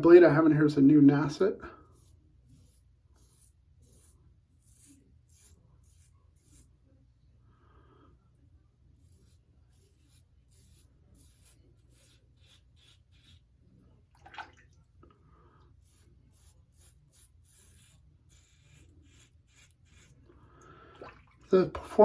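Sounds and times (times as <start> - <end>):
razor scraping stubble: 1.8 - 6.8, 8.9 - 13.6, 15.8 - 20.4.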